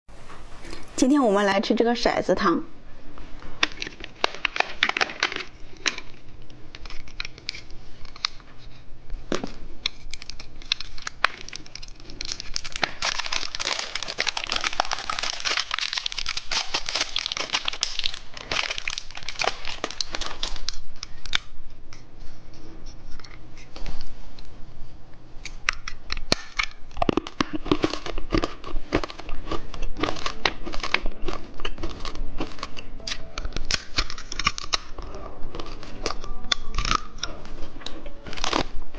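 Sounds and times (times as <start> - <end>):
plastic wrapper crinkling: 0.2 - 1.5, 9.4 - 21.5, 25.5 - 38.9.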